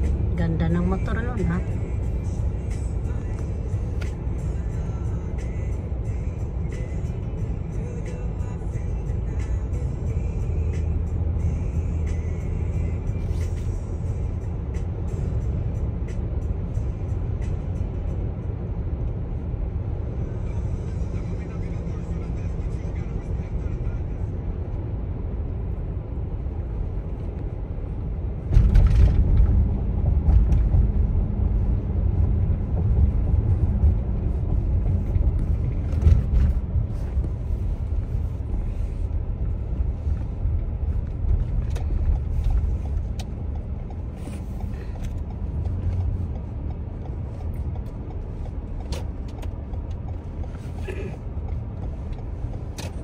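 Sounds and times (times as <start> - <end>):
car tyres and engine rumble: 0.0 - 53.0.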